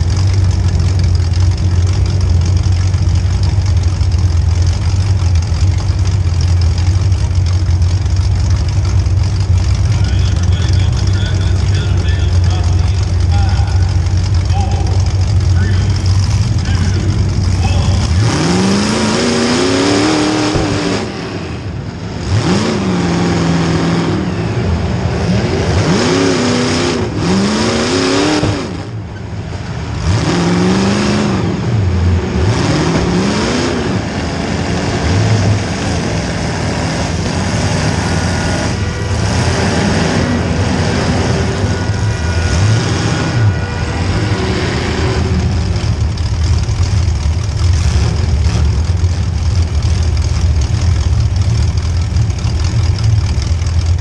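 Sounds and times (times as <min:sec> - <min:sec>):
car engine revving hard: 0:09.3 - 0:29.1, 0:29.8 - 0:53.0.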